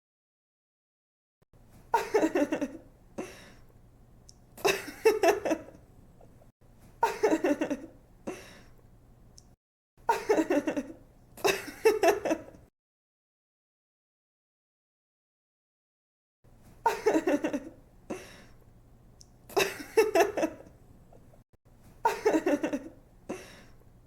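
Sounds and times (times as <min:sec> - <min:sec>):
young woman giggling: 0:01.9 - 0:02.8, 0:04.6 - 0:05.8, 0:07.0 - 0:08.4, 0:10.1 - 0:12.6, 0:16.8 - 0:18.2, 0:19.5 - 0:20.7, 0:22.0 - 0:23.6.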